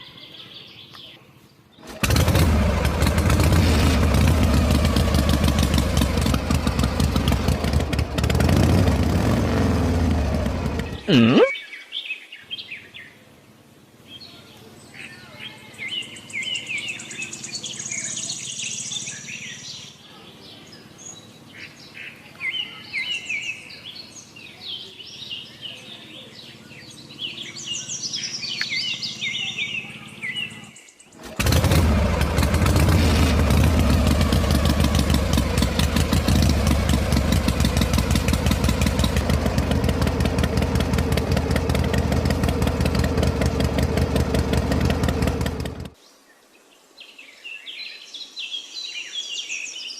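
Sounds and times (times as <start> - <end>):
small birds chirping: 0.0 - 9.1, 9.8 - 13.3, 14.0 - 49.9
toy diesel engine running: 1.8 - 8.8, 31.2 - 45.9.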